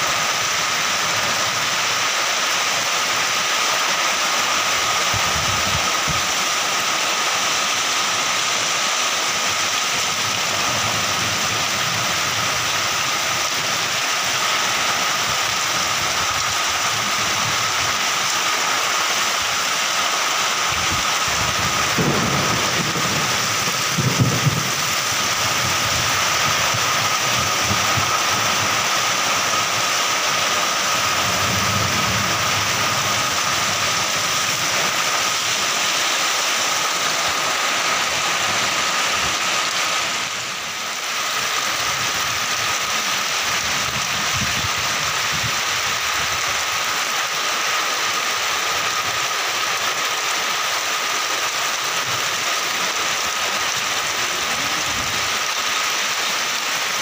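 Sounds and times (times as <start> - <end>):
heavy rain on earth and tarpaulin: 0.0 - 57.0
low thunder rumbles: 20.8 - 28.9, 31.0 - 35.3.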